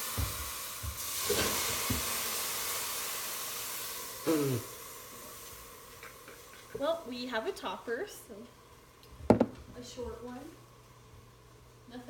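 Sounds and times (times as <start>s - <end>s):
water hissing in a hot pan: 0.0s - 8.1s
falling voice-like sound: 4.3s - 4.6s.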